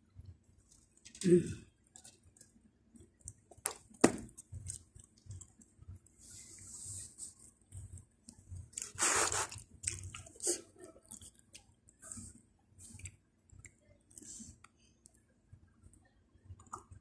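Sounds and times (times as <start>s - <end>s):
person chewing pizza: 1.8s - 5.7s, 7.7s - 15.2s
rustling scrape: 6.2s - 7.4s.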